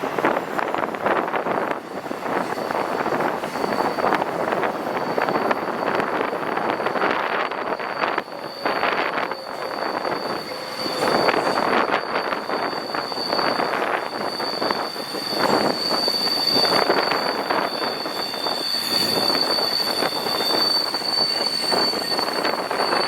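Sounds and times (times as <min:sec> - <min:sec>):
train wheels squealing: 0:00.0 - 0:23.0.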